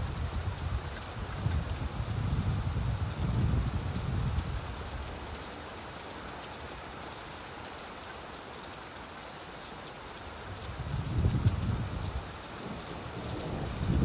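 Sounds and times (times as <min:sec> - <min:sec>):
steady rainfall: 0:00.0 - 0:14.0
distant thunder rumble: 0:12.6 - 0:14.0.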